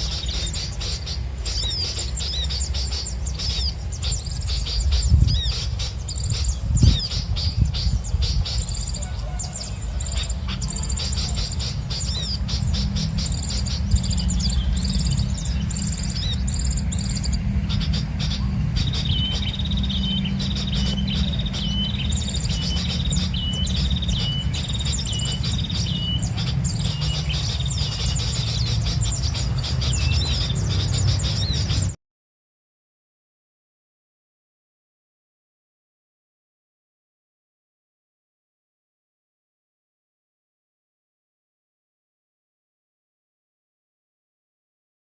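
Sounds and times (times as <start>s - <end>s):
small birds chirping: 0.0s - 32.0s
steady low rumble: 0.0s - 32.0s.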